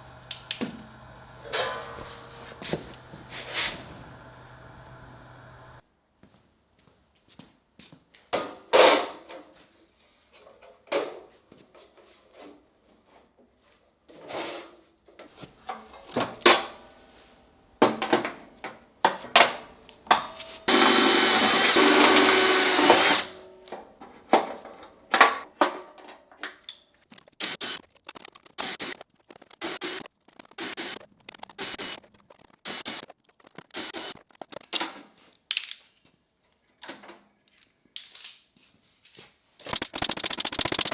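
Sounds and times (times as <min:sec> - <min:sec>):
power tool running: 0:00.0 - 0:05.8, 0:20.1 - 0:23.6, 0:39.7 - 0:40.9.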